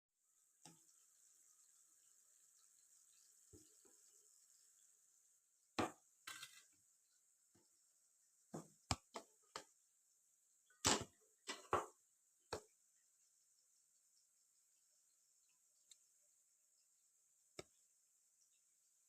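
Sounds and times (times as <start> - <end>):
kitchen utensils clattering: 6.3 - 6.7.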